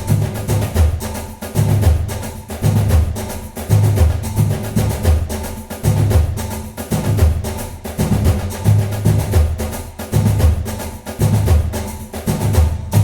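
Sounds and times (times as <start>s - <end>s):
music with percussive beat and bass: 0.0s - 13.0s.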